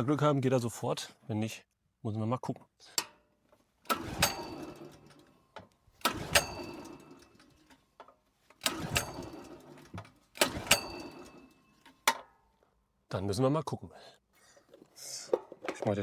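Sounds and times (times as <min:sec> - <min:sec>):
generator engine pull-start cranking: 0:03.8 - 0:12.3.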